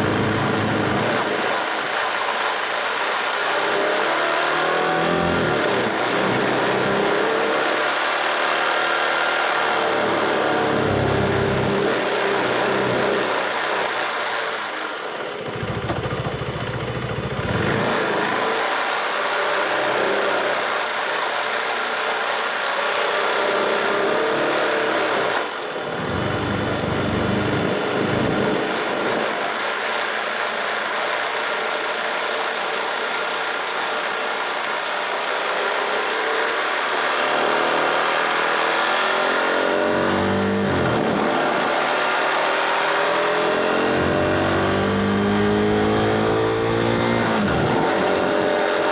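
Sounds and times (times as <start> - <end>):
motorcycle engine running: 0.0 - 48.9
wind and road noise: 38.1 - 48.9.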